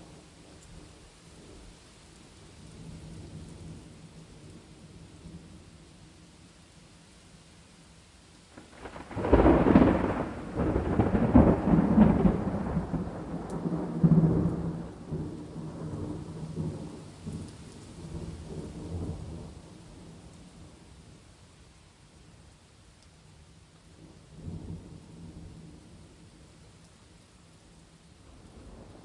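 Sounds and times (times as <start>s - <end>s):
steady rain: 0.0s - 29.0s
thunderclap rumbling: 8.6s - 17.4s.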